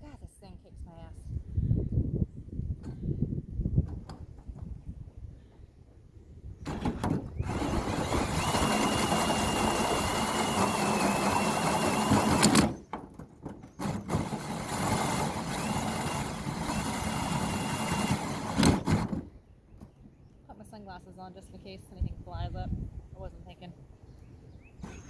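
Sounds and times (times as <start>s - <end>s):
cordless drill cutting metal: 6.7s - 12.8s, 13.8s - 19.2s.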